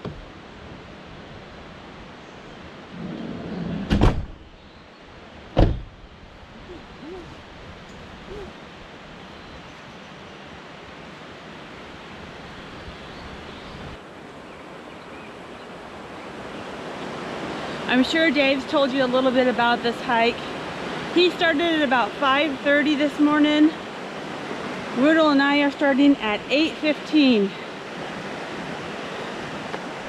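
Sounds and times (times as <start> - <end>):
water rushing: 5.2 - 30.0
microphone bump knocks: 5.6 - 6.0.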